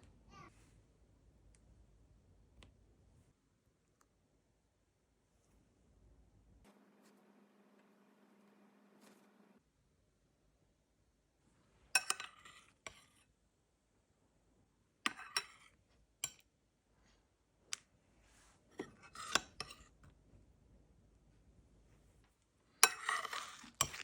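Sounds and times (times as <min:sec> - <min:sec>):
cutlery and dishes clinking: 0:12.0 - 0:13.2, 0:15.1 - 0:16.4, 0:22.8 - 0:24.0.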